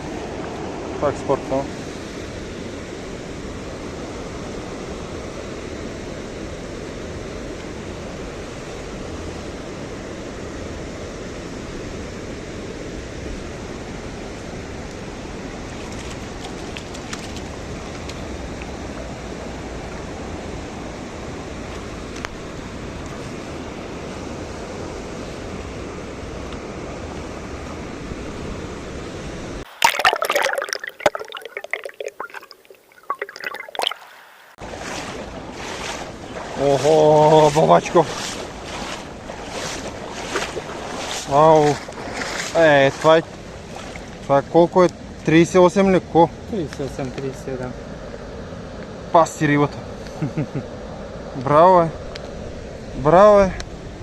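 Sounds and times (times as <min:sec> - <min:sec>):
river water rushing: 0:29.7 - 0:44.4.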